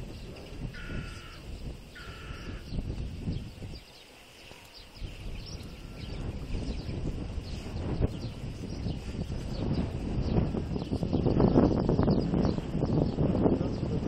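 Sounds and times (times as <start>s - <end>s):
small birds chirping: 0.0s - 14.0s
wind buffeting microphone: 0.0s - 14.0s
bird calling: 0.5s - 2.9s.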